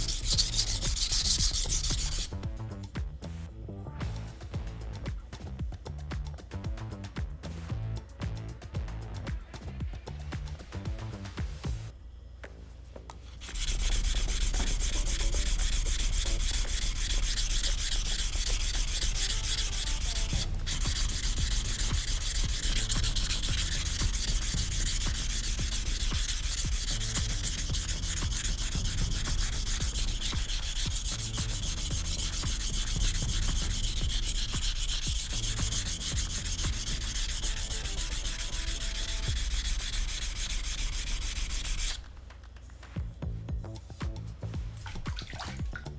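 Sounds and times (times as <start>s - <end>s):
knife blade scraping on whetstone: 0.0s - 2.4s, 13.4s - 42.0s.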